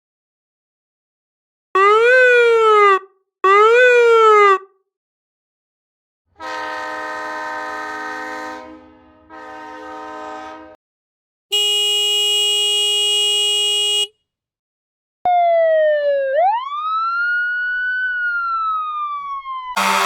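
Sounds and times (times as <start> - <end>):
train horn chord: 6.4 - 10.8, 19.8 - 20.0
vehicle horn blast: 6.4 - 10.8, 11.5 - 14.1, 19.8 - 20.0.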